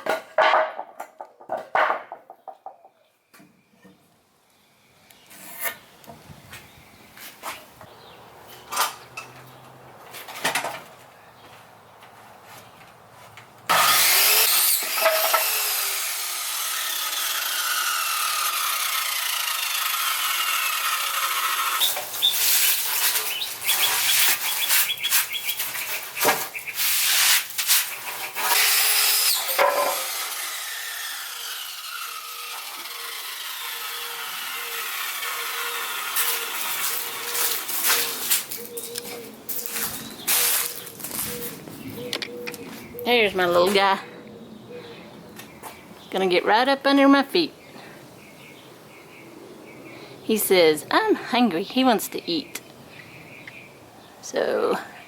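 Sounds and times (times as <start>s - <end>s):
electric saw cutting wood: 13.7s - 38.9s.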